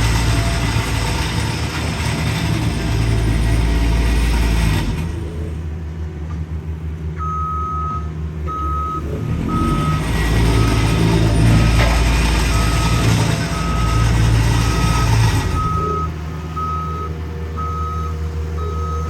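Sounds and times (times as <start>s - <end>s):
heavy diesel equipment running: 0.0s - 19.0s
back-up alarm beeps: 7.2s - 10.0s, 12.4s - 19.0s.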